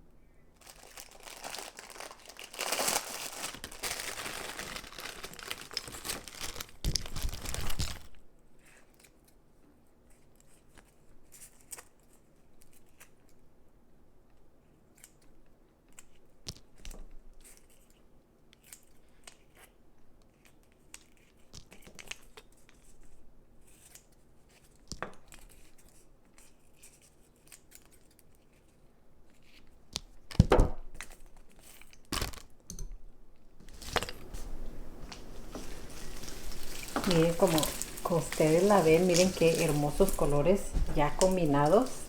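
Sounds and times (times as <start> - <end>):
crinkling and rustling: 0.6 - 9.4, 33.3 - 42.0.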